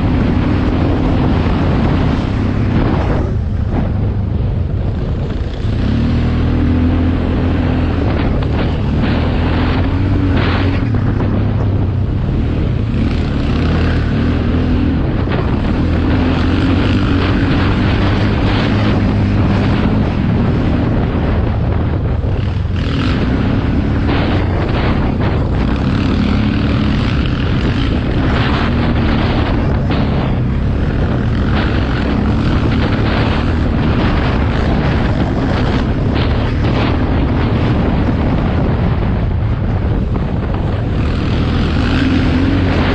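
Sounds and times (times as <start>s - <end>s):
motocross motorcycle engines revving: 0.0s - 42.9s.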